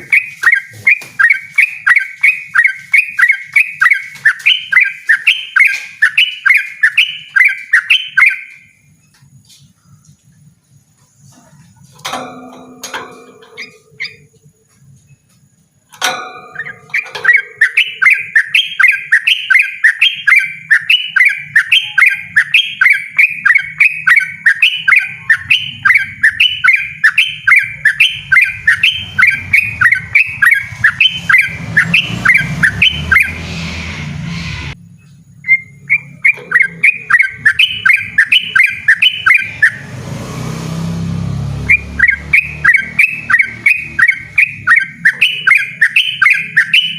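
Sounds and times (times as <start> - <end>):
bird singing rapid repeated notes: 0.0 - 46.9
low rumble: 28.1 - 35.4.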